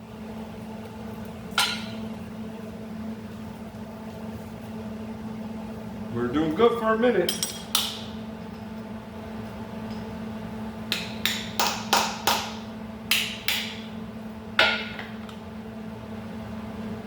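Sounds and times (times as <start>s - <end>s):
steady low hum: 0.0s - 17.0s
hammer striking metal: 10.9s - 13.8s.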